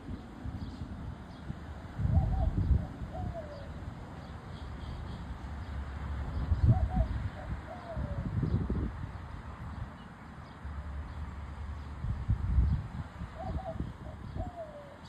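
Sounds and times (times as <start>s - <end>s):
bird calling: 2.0s - 5.3s, 6.6s - 8.3s, 13.4s - 15.0s.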